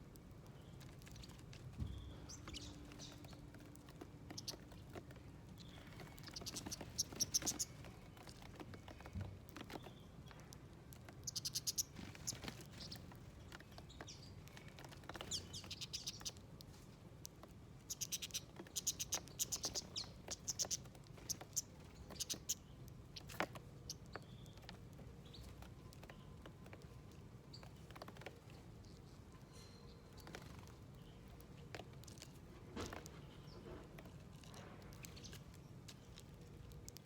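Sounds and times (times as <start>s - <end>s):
songbirds chirping: 0.0s - 37.0s.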